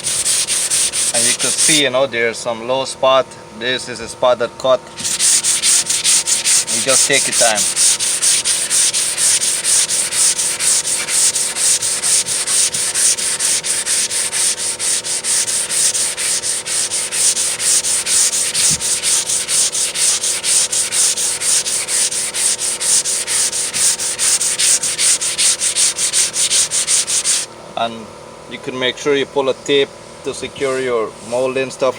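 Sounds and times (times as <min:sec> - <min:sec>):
sandpaper rubbing back and forth: 0:00.0 - 0:02.0, 0:05.0 - 0:27.5.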